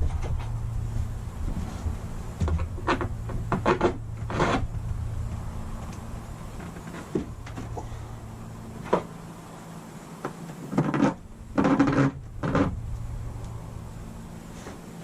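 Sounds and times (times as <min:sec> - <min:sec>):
knocks and rustles: 0:00.0 - 0:08.0, 0:08.8 - 0:09.2, 0:10.2 - 0:13.0
steady low hum: 0:00.0 - 0:15.0.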